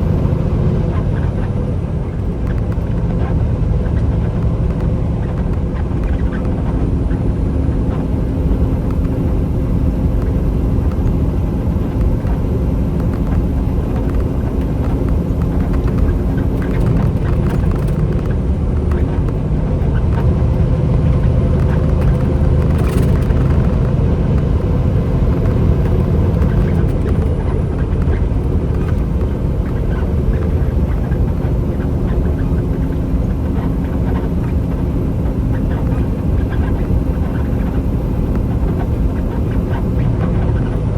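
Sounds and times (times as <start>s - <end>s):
faint engine drone: 0.0s - 40.9s
truck engine and road rumble: 0.0s - 40.9s.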